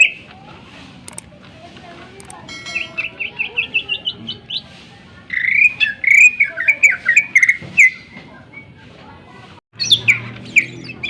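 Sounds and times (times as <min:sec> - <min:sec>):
bird chirps climbing in pitch: 0:02.5 - 0:04.7, 0:05.3 - 0:08.8, 0:09.8 - 0:11.0.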